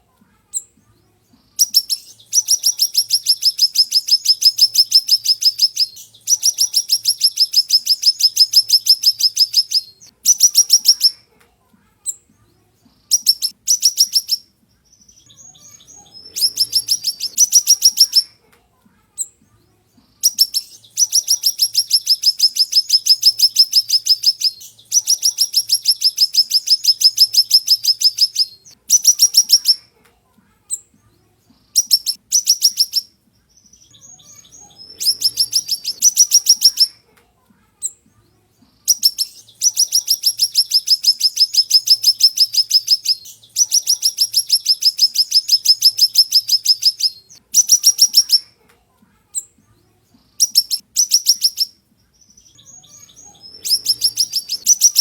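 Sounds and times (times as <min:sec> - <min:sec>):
songbird trilling: 0:01.6 - 0:11.2, 0:13.1 - 0:14.4, 0:15.0 - 0:18.3, 0:20.2 - 0:29.8, 0:31.8 - 0:37.0, 0:38.9 - 0:48.5, 0:50.4 - 0:55.0.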